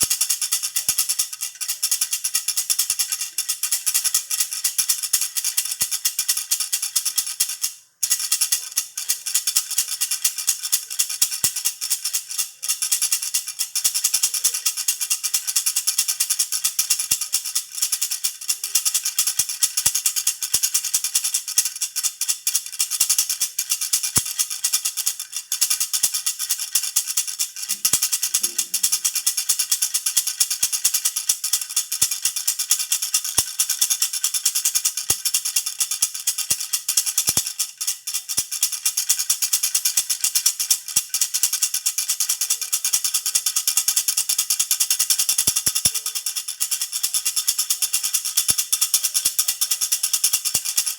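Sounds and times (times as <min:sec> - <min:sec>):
baby rattle jingling: 0:08.0 - 0:50.9.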